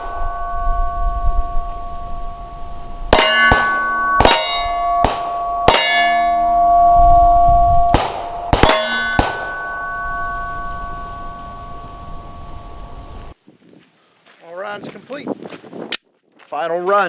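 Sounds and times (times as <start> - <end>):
steel targets ringing: 0.0 - 13.4
pistol shots: 3.5 - 5.9, 7.9 - 9.6.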